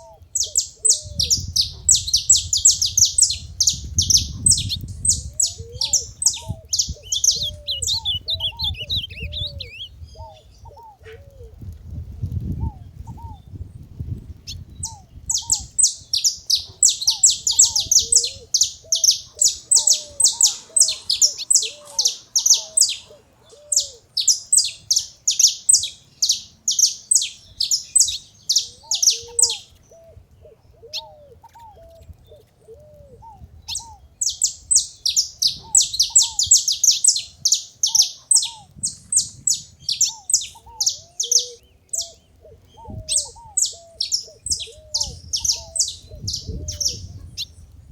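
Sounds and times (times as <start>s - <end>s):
finches chirping: 0.0s - 11.1s, 14.5s - 30.0s, 33.7s - 47.6s.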